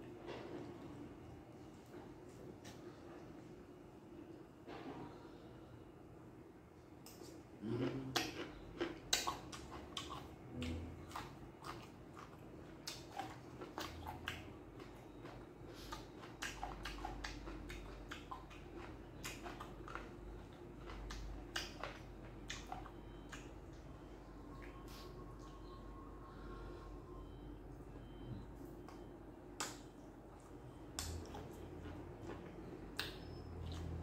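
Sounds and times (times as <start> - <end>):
person chewing: 7.0 - 34.0
wet mouth clicks and smacks: 20.9 - 23.5, 29.6 - 31.5, 33.0 - 34.0.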